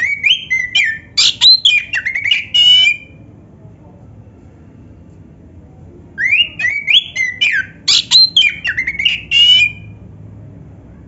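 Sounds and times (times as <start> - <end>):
bird singing whistled notes: 0.0 - 3.2, 6.2 - 9.9.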